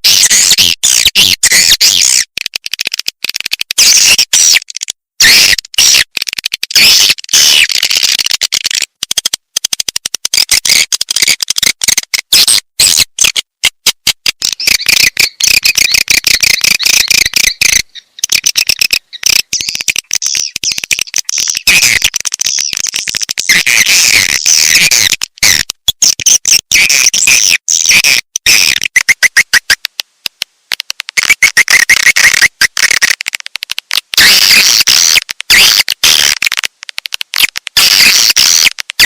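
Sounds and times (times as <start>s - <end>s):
swiftlet twittering chirps: 14.6s - 21.6s.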